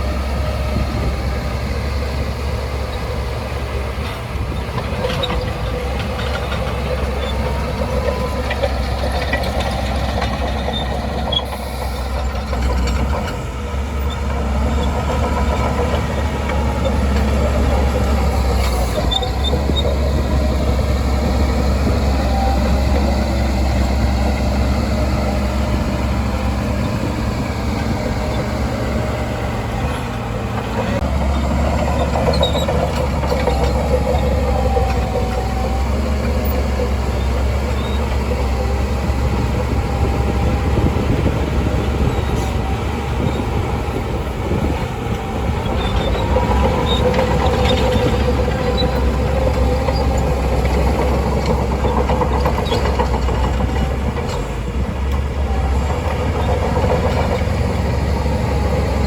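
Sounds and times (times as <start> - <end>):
bulldozer diesel engine droning: 0.0 - 59.0.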